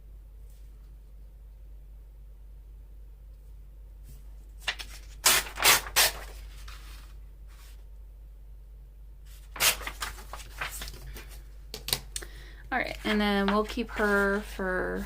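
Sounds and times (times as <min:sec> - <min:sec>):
paper rustling: 0:04.6 - 0:07.8, 0:09.3 - 0:11.5, 0:12.9 - 0:14.6.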